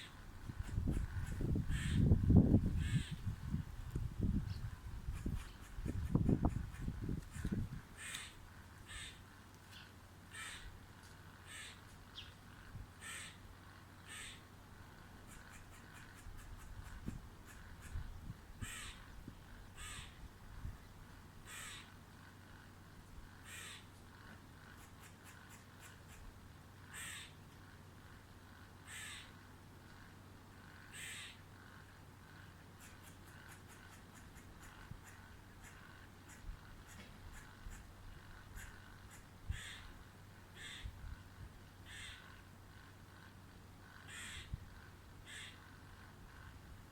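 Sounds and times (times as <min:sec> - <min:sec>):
short bird calls: 0:00.0 - 0:03.3, 0:11.4 - 0:14.4, 0:23.4 - 0:24.1, 0:26.9 - 0:27.4, 0:28.8 - 0:29.4, 0:30.7 - 0:31.8, 0:32.4 - 0:41.2, 0:41.8 - 0:42.9, 0:43.9 - 0:44.6, 0:45.2 - 0:46.4
faint steady low hum: 0:00.0 - 0:46.9.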